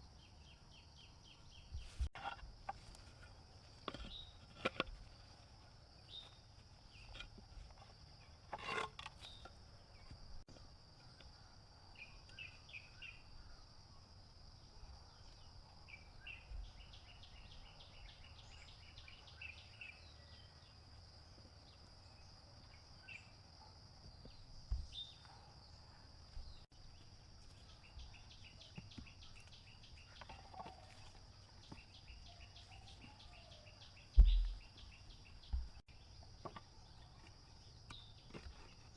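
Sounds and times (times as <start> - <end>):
insects droning: 0.0 - 38.9
loud thump: 34.2 - 34.6.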